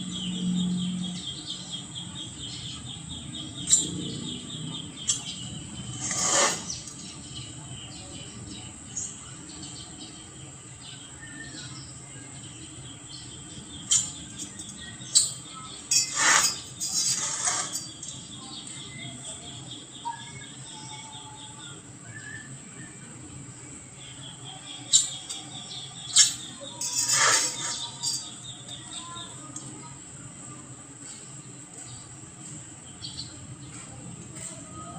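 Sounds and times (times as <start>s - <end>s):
insects trilling: 23.9s - 29.6s.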